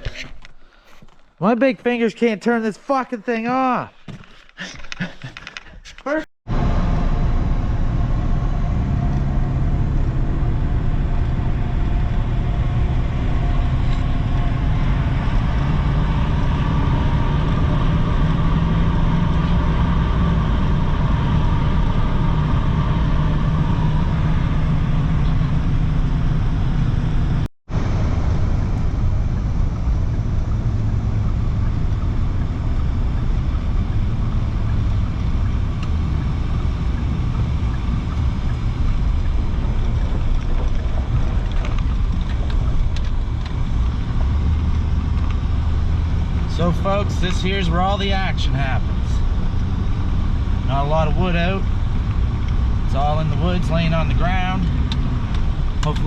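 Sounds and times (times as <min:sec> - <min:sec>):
vehicle engine droning: 0:06.5 - 0:56.0.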